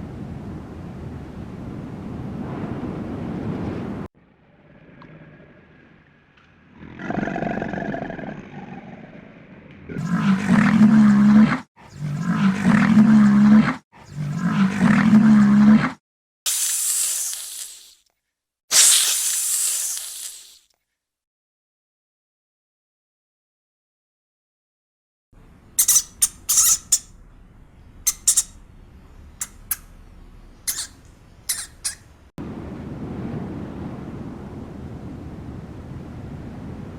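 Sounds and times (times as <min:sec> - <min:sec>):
large animal deep call: 0:04.4 - 0:16.0, 0:30.6 - 0:32.2
hiss: 0:16.5 - 0:18.0, 0:18.7 - 0:20.7
bird squawking harshly: 0:25.7 - 0:27.2, 0:28.0 - 0:28.6, 0:29.4 - 0:30.0, 0:30.6 - 0:32.2.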